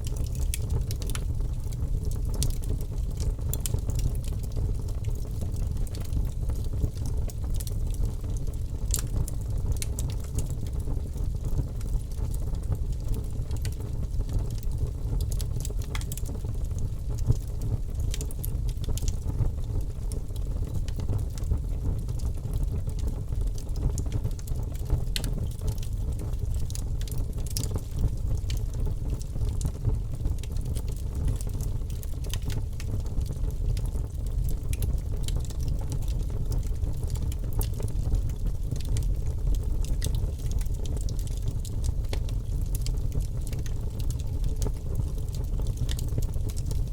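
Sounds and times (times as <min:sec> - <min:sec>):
low rumble of flames: 0:00.0 - 0:46.9
wood fire crackling and popping: 0:00.0 - 0:46.9.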